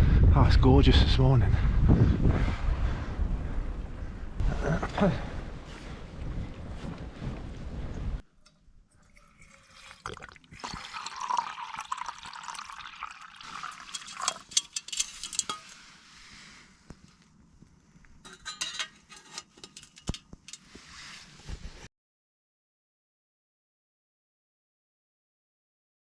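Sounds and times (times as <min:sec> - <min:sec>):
water pouring into pot: 0:08.4 - 0:15.7
cookware clinking and rattling: 0:08.4 - 0:15.8, 0:18.3 - 0:20.7.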